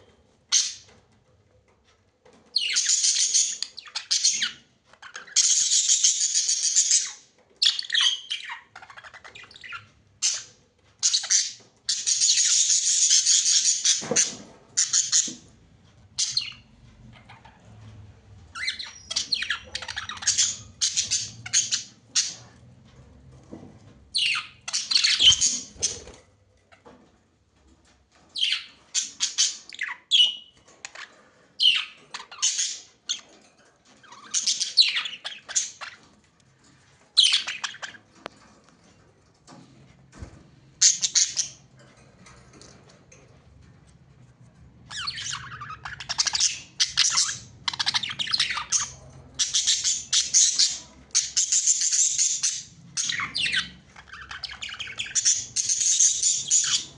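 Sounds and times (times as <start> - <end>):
budgerigars chattering and chirping: 2.6 - 15.3, 16.2 - 17.6, 18.5 - 22.5, 24.2 - 26.2, 34.0 - 36.0, 37.2 - 38.1, 40.8 - 41.6, 44.9 - 56.9.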